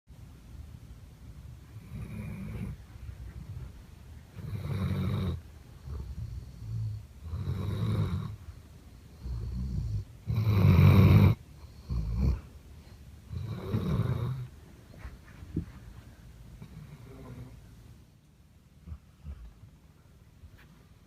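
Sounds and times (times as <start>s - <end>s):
dog snoring: 1.7s - 3.7s, 4.3s - 8.5s, 9.1s - 12.5s, 13.3s - 14.6s, 16.6s - 17.7s, 18.8s - 19.7s.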